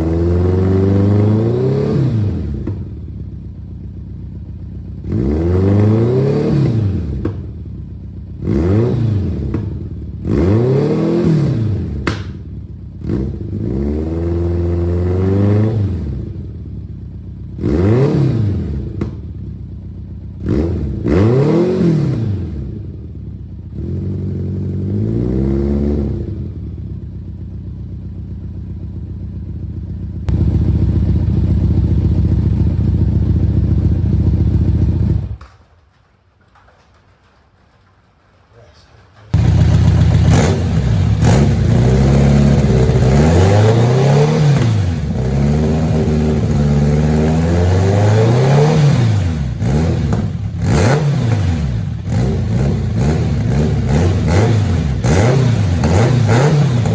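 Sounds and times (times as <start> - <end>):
motorcycle engine revving: 0.0 - 35.4, 39.1 - 56.9.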